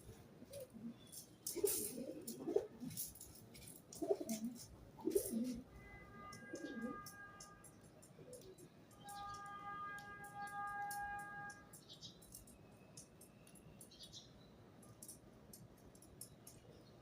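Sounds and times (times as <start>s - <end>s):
faint steady musical tones: 0.0s - 17.0s
pigeon cooing: 0.4s - 3.1s, 3.9s - 5.6s, 6.4s - 7.1s.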